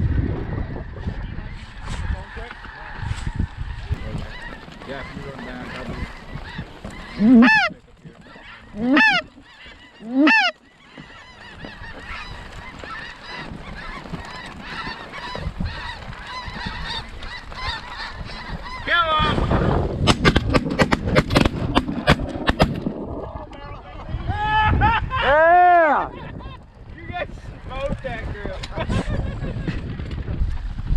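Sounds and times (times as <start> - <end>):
geese honking: 0.6 - 19.4.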